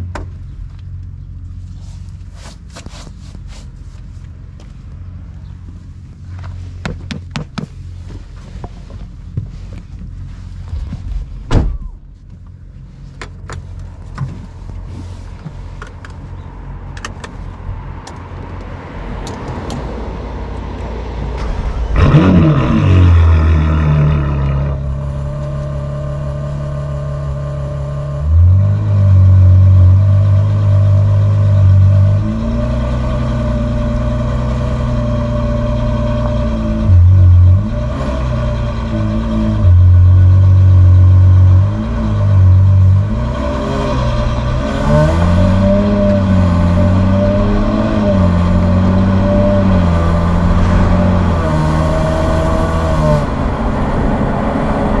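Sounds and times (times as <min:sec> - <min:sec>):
sports car engine revving and idling: 0:00.0 - 0:55.0
thump: 0:10.7 - 0:12.0.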